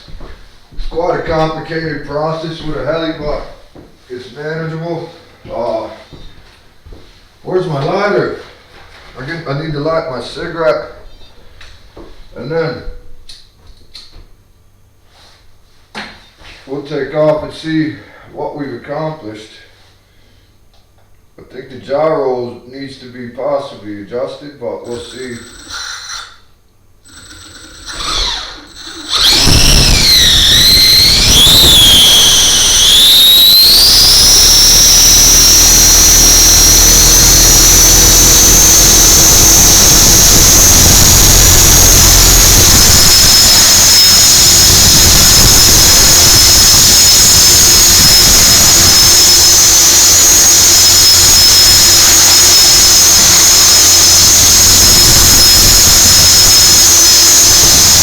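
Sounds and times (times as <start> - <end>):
rc helicopter whine: 24.9 - 26.4, 27.1 - 58.0.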